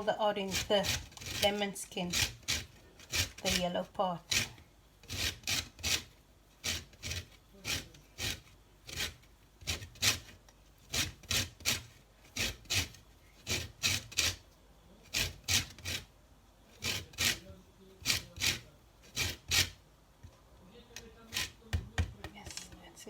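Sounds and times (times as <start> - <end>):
lemon peel rasping on zester: 0.0 - 14.4, 15.1 - 16.1.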